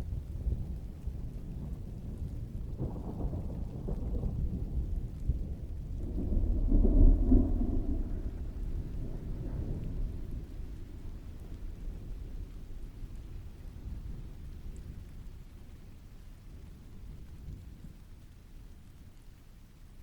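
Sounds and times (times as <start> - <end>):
low rolling thunder: 0.0 - 19.0
steady rainfall: 0.0 - 20.0.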